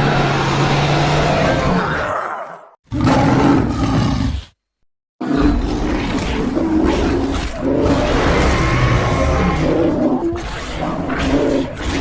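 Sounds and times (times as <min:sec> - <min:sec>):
cartoon pig growling roar: 0:05.2 - 0:12.0.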